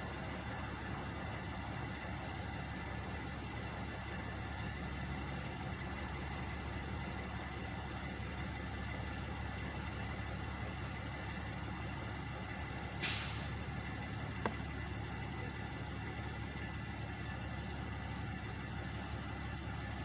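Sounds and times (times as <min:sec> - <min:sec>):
trucks idling: 0:00.0 - 0:20.0
air brake hiss: 0:13.0 - 0:13.6.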